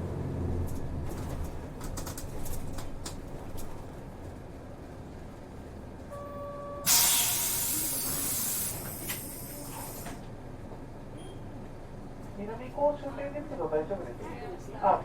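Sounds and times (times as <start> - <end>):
bus engine idling: 0.0 - 15.0
short steady beep: 6.2 - 7.0
compressed air hiss: 6.9 - 10.1.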